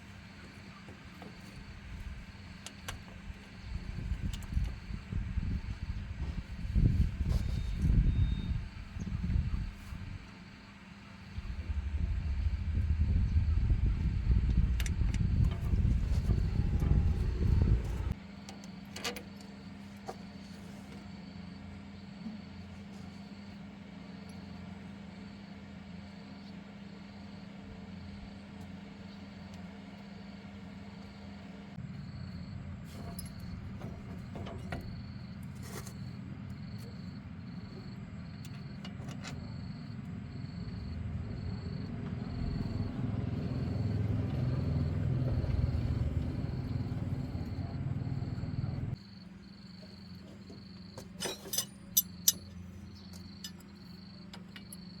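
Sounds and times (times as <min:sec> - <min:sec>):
faint engine ticking: 0:11.3 - 0:18.2, 0:31.0 - 0:49.0
car engine running: 0:11.4 - 0:18.2, 0:39.9 - 0:49.0.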